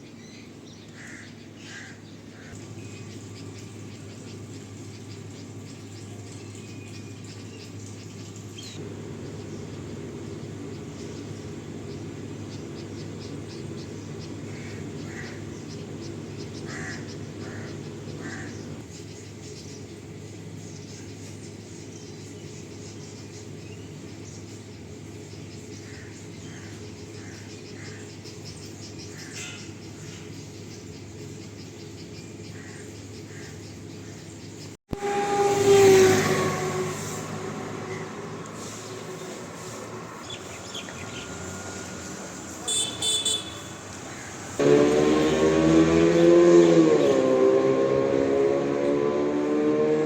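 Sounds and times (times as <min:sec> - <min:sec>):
steady low hum: 0:00.0 - 0:34.8
birds chirping: 0:00.0 - 0:50.0.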